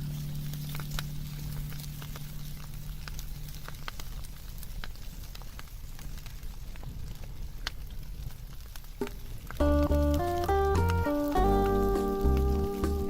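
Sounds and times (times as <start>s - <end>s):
low steady hum: 0.0s - 8.2s
sharp pops of fire: 0.0s - 13.0s
steady hiss: 0.0s - 13.0s
wood fire crackling: 0.0s - 13.0s.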